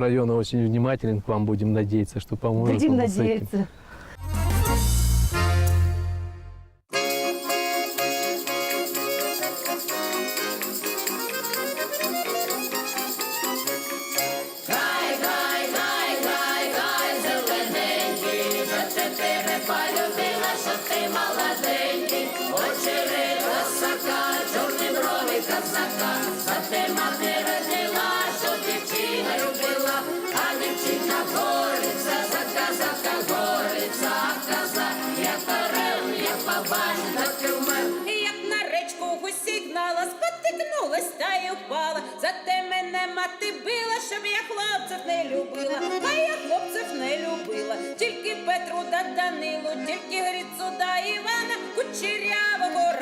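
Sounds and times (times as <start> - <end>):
folk music with hand percussion: 4.2 - 6.2, 6.9 - 38.2, 45.3 - 53.0.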